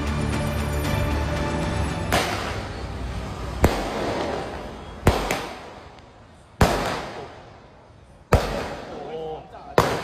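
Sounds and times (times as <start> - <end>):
fireworks crackle: 2.0 - 7.6
fireworks bangs: 2.1 - 2.8, 3.5 - 10.0.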